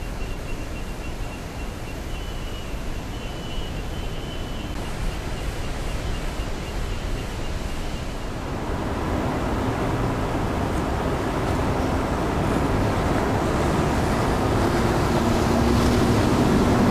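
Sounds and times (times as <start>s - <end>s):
waterfall rushing: 0.1s - 16.9s.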